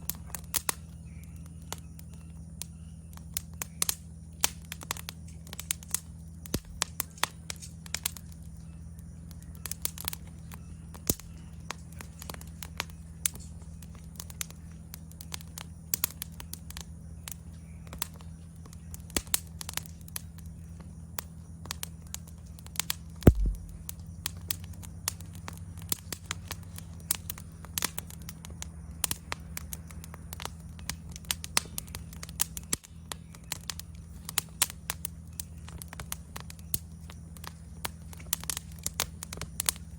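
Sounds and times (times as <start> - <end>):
insect trill: 0.0 - 39.9
wood fire crackling and popping: 0.0 - 39.9
loud thump: 23.3 - 23.8.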